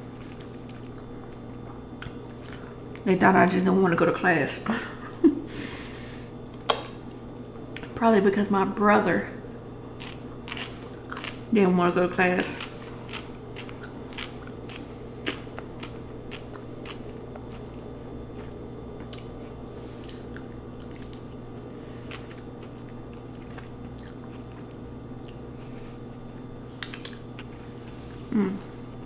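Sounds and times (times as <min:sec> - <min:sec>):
person chewing noodles: 0:00.0 - 0:03.0, 0:10.0 - 0:11.5, 0:12.4 - 0:28.7
steady low hum: 0:00.0 - 0:29.0.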